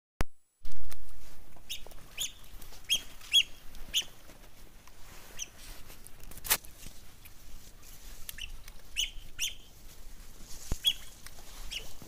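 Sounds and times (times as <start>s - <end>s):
bird giving sharp high calls: 1.7s - 4.2s, 10.8s - 11.1s.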